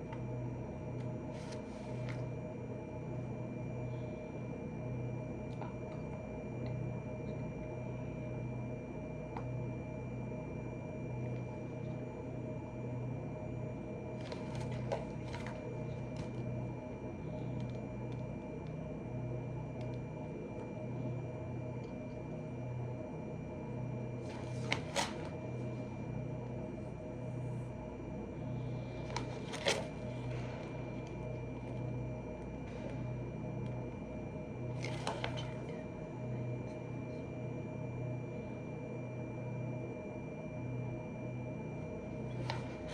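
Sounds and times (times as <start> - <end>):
room hum: 0.0 - 42.9.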